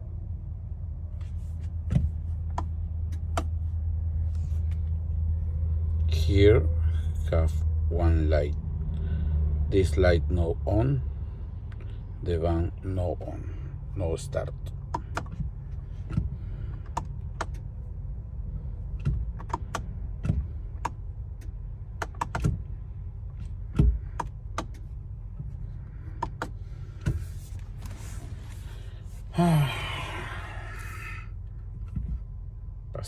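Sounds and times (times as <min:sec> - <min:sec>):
steady low hum: 0:00.0 - 0:33.0
sharp clicks and knocks: 0:18.9 - 0:22.7, 0:23.3 - 0:25.6
falling voice-like sound: 0:29.3 - 0:31.2.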